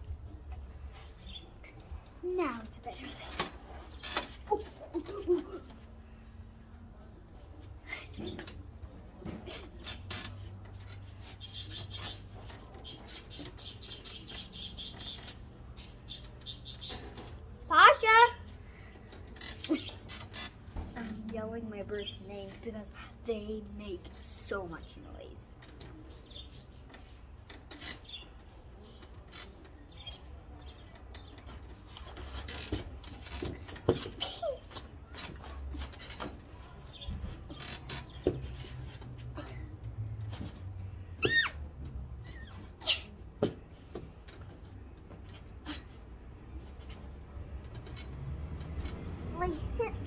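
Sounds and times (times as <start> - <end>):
birds chirping and chattering: 1.0 - 2.1, 8.0 - 18.2, 19.1 - 21.4, 24.8 - 39.0.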